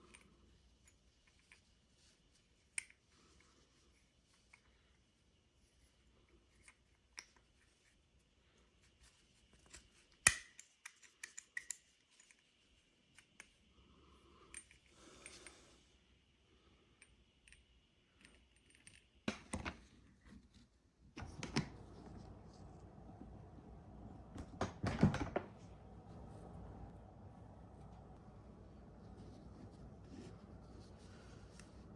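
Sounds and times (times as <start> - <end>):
pistol parts clicking and clinking: 9.6 - 12.4
knocks and rustling: 24.4 - 25.7.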